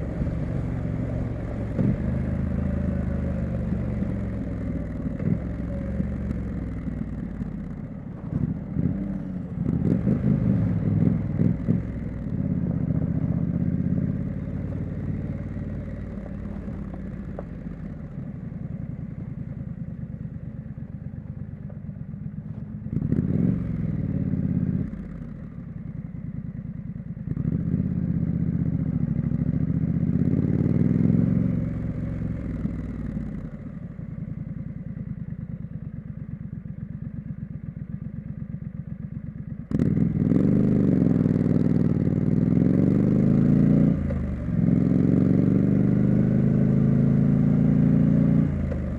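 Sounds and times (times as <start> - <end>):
motorcycle engine revving: 0.0 - 20.2, 22.8 - 25.4, 27.3 - 35.1, 39.6 - 48.9.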